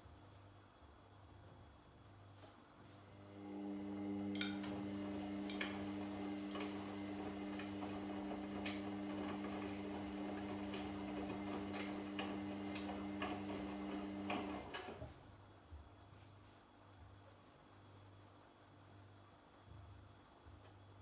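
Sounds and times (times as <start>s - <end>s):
washing machine motor hum: 3.0s - 15.2s
washing machine clicks: 4.1s - 15.0s.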